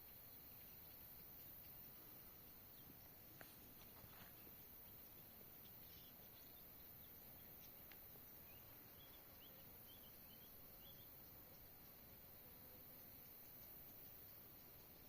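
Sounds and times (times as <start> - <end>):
faint high bird chirps: 0.0 - 12.0
outdoor background hiss: 0.0 - 15.0.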